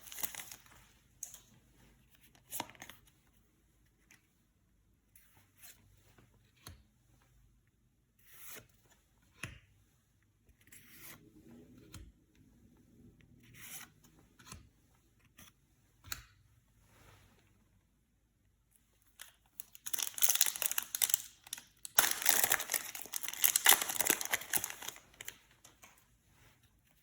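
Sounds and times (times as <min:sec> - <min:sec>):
foil wrapping rustling: 0:00.0 - 0:00.7, 0:19.6 - 0:25.4.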